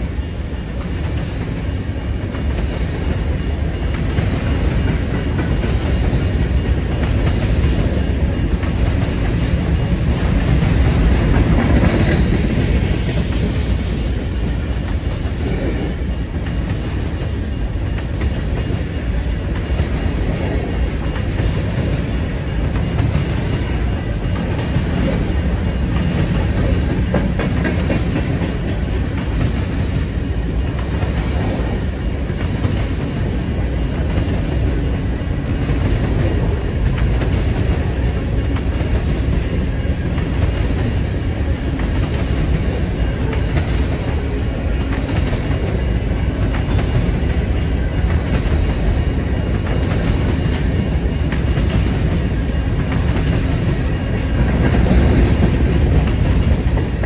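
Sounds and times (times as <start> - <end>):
freight train wheels rolling on rails: 0.0 - 57.0.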